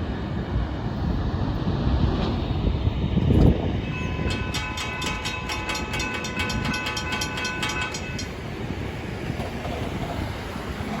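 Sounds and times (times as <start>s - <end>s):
freight train cars rumbling: 0.0s - 11.0s
rapid metallic ringing: 4.0s - 8.5s.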